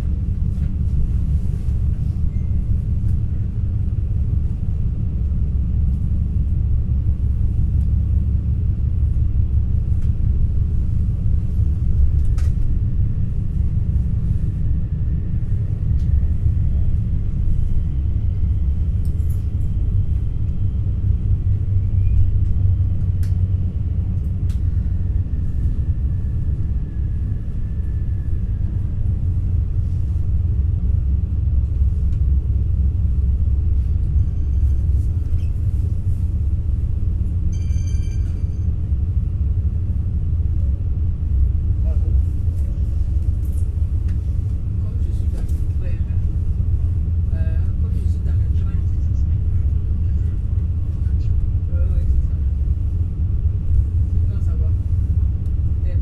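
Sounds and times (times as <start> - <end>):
electric train rumbling: 0.0 - 56.0
faint high whine: 37.5 - 38.7.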